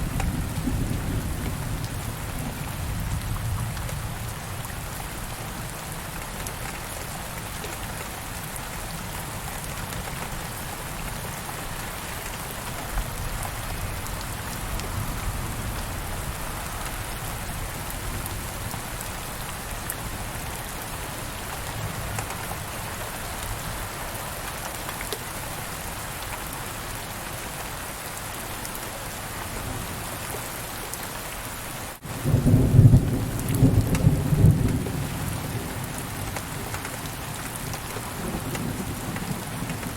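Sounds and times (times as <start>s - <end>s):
rain falling: 0.0s - 39.9s
thunder rumbling: 32.1s - 36.0s.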